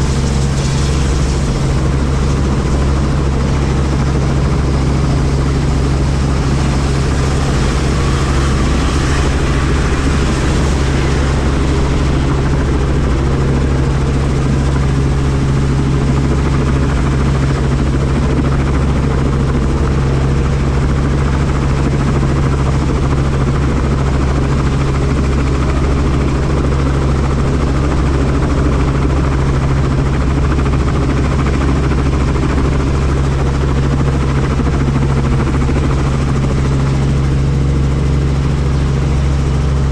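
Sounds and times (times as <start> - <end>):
rushing air: 0.0 - 17.1
helicopter rotor and engine hum: 0.0 - 39.9.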